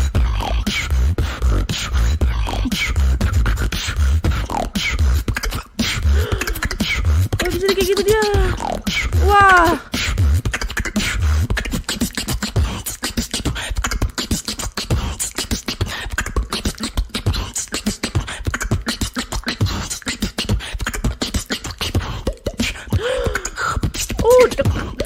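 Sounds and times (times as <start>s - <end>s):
woman beatboxing: 0.0s - 25.0s.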